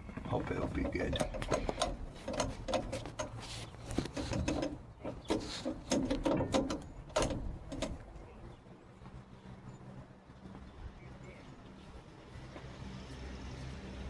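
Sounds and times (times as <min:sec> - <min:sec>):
sharp knocks: 0:04.0 - 0:08.0.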